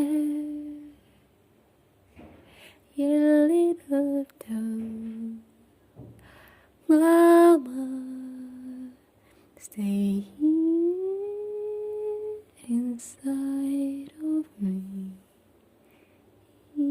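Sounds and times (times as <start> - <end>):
woman humming slow melody: 9.9 - 15.2.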